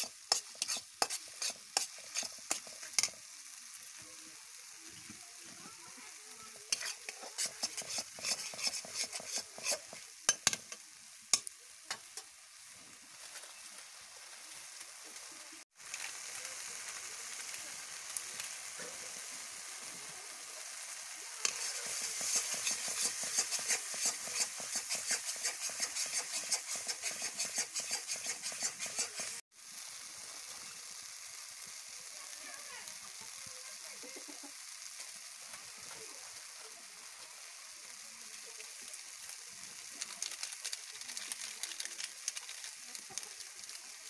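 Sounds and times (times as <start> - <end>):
metal spatula scraping a pan: 0.0 - 3.2, 6.7 - 10.8, 21.4 - 29.4
chicken sizzling in a pan: 0.0 - 44.0.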